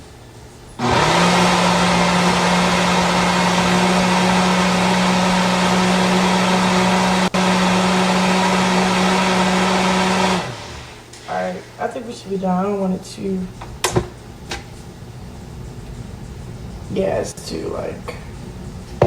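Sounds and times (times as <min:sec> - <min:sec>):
blender motor running: 0:00.8 - 0:11.1.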